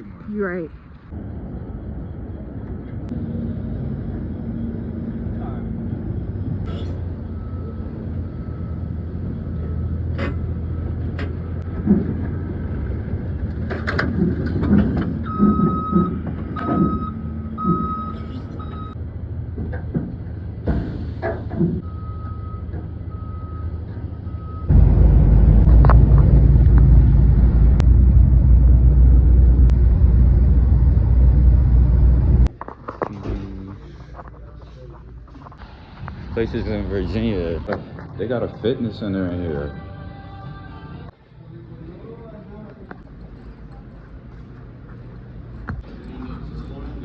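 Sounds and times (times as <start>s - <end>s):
truck engine rumbling: 0.0s - 41.3s
knocks and clanks: 13.4s - 17.9s, 19.5s - 21.8s
backup alarm beeping: 15.2s - 19.0s, 21.8s - 24.8s
loud steady low rumble: 24.5s - 32.5s.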